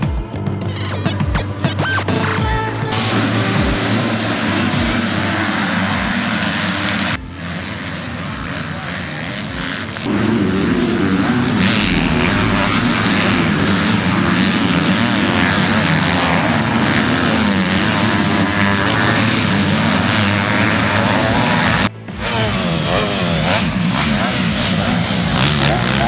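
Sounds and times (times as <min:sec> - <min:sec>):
motocross bike engines revving: 0:03.4 - 0:26.0.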